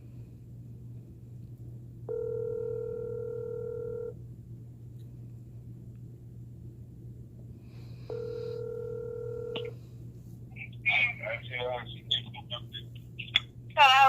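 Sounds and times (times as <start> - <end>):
low phone line hum: 0.0 - 14.0
telephone ringback tone: 2.1 - 4.2, 8.1 - 9.7.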